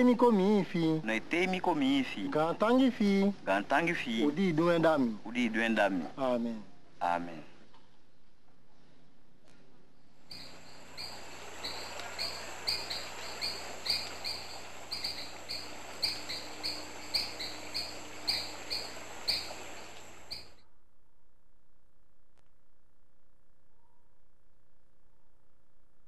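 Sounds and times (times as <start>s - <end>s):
steady hiss: 10.0s - 20.6s
bird chirping: 10.2s - 20.6s.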